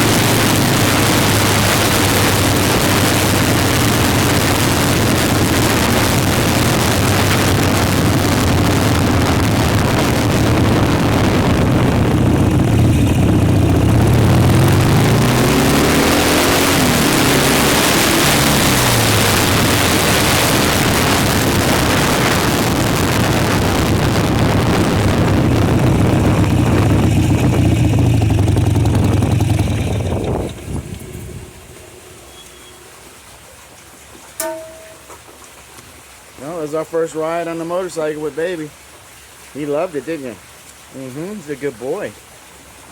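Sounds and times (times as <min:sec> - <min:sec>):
wind rush on microphone: 0:00.0 - 0:31.8
motorcycle engine running: 0:00.0 - 0:32.2.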